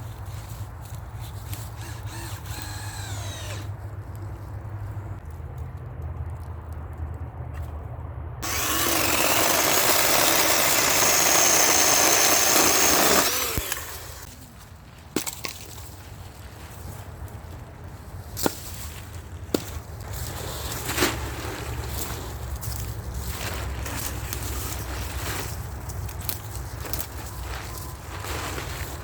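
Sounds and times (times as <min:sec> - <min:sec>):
chainsaw cutting wood: 0:01.8 - 0:03.7, 0:08.4 - 0:14.3.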